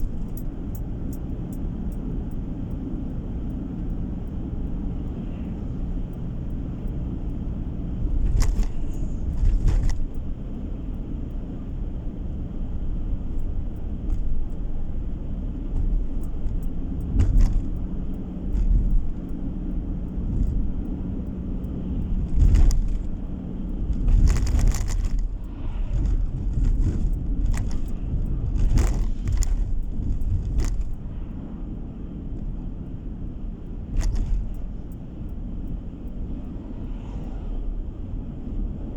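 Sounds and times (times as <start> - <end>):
car engine and tyres rumbling: 0.0 - 38.9
short clicks and rattles: 15.6 - 31.0.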